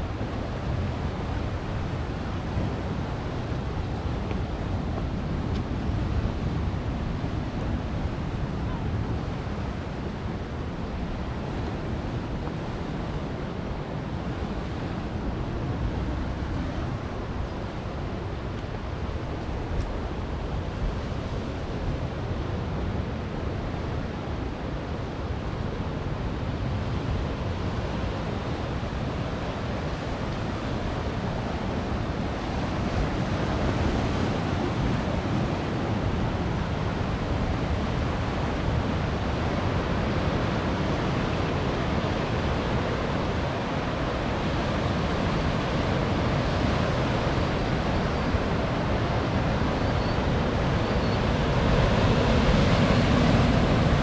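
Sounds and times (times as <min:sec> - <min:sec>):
ocean surf breaking on rocks: 0:28.8 - 0:54.0.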